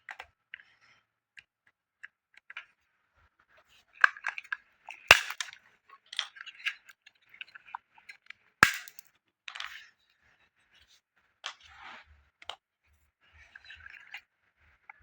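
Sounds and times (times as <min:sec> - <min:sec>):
small hard parts clicking: 0:05.1 - 0:05.5, 0:08.6 - 0:09.7.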